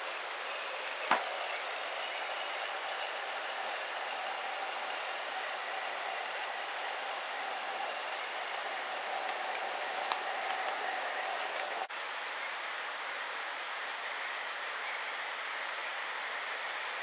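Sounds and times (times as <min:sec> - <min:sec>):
campfire hissing: 0:00.0 - 0:11.9.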